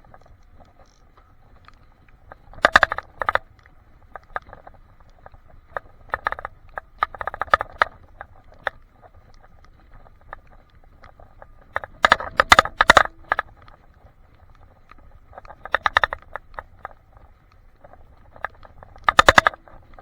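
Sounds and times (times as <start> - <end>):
rattling clicks: 2.5 - 3.4, 11.7 - 13.8, 15.3 - 17.0, 18.3 - 20.0.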